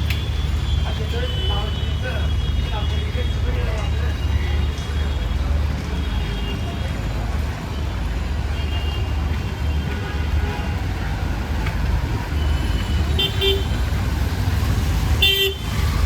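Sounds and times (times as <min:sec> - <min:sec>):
traffic engines rumbling: 0:00.0 - 0:16.0
vehicle horn toots: 0:12.4 - 0:13.8, 0:15.2 - 0:15.7.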